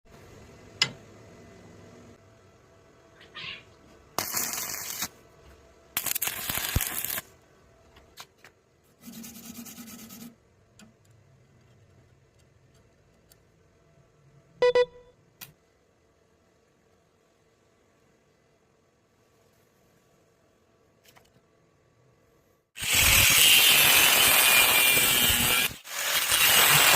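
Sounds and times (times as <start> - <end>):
arc welding crackle: 4.2 - 5.2, 5.9 - 7.3, 22.8 - 26.9.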